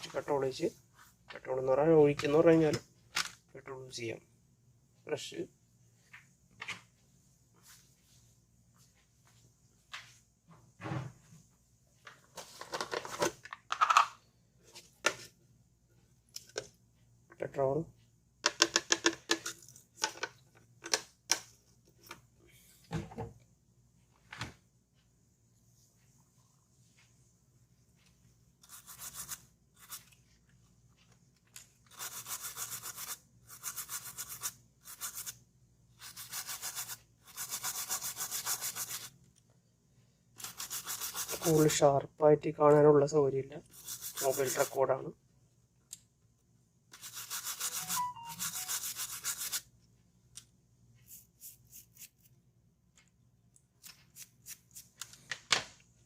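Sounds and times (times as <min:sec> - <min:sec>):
brush scrubbing circuit board: 0:28.6 - 0:30.2, 0:31.9 - 0:35.4, 0:36.0 - 0:39.1, 0:40.4 - 0:41.8, 0:43.7 - 0:44.8, 0:46.9 - 0:49.7.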